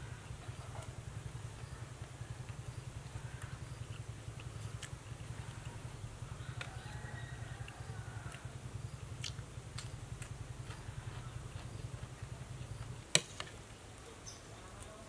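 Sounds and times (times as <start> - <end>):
steady low hum: 0.0 - 15.0
crunching while eating: 1.6 - 13.0.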